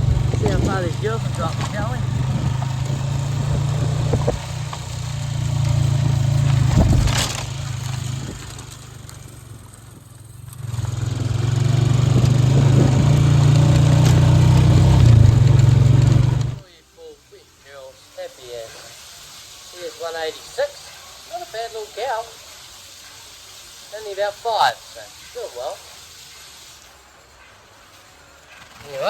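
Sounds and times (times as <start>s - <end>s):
farm vehicle engine running: 0.0s - 16.6s.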